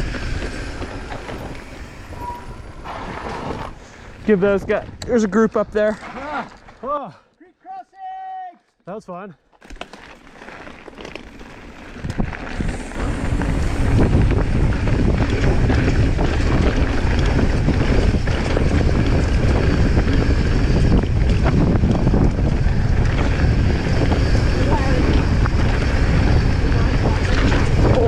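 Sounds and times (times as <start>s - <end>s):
wind buffeting microphone: 0.0s - 6.1s, 11.8s - 28.0s.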